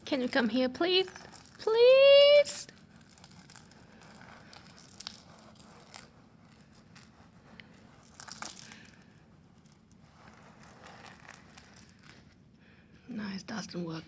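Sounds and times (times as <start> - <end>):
faint rustling and crinkling: 0.0 - 13.1.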